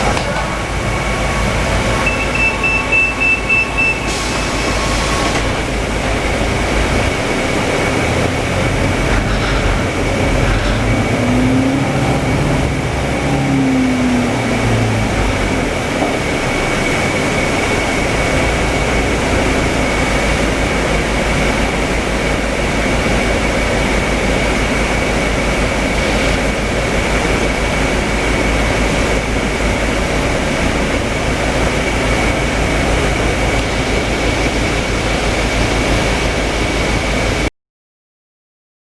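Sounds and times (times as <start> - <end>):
thin high whine: 0.0 - 22.4
bus engine drone: 0.0 - 37.5.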